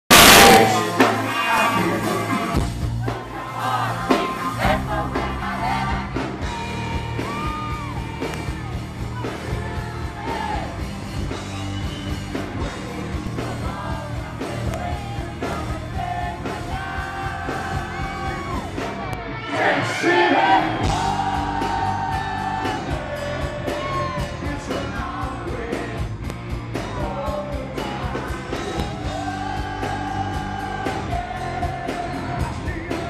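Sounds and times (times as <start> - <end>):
man singing lead vocal: 0.1 - 2.6, 12.8 - 18.6, 19.5 - 33.0
live hard rock band: 0.1 - 33.0.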